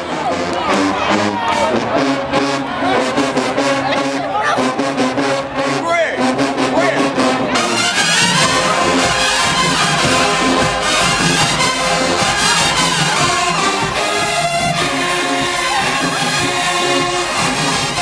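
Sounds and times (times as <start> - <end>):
marching band brass: 0.0 - 18.0
steady drum beat: 6.2 - 18.0.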